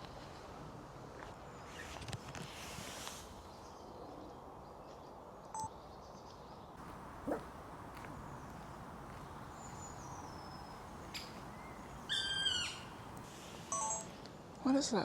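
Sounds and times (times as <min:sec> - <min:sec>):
woodpecker plaintive call: 0:09.6 - 0:13.2.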